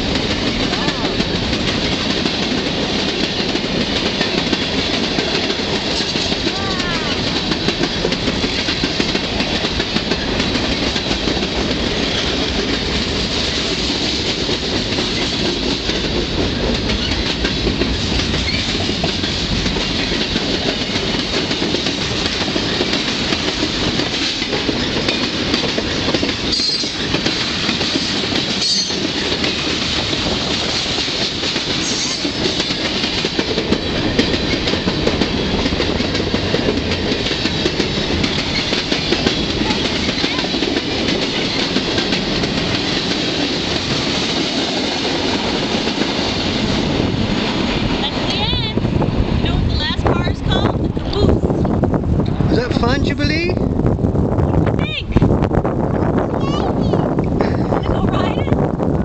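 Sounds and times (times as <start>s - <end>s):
wheels clacking over rail joints: 0.0s - 51.3s
freight train cars rumbling: 0.0s - 59.0s.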